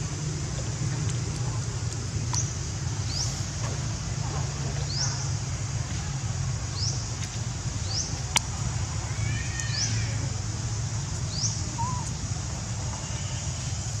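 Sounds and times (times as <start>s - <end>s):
bird chirping: 11.3s - 12.2s.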